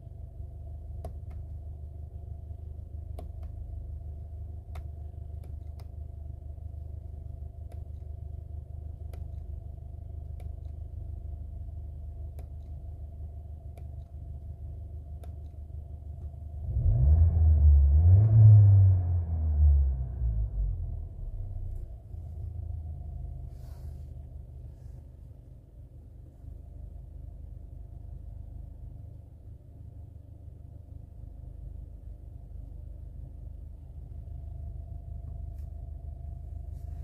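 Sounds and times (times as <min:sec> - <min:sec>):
car engine idling and revving: 0:13.8 - 0:25.0.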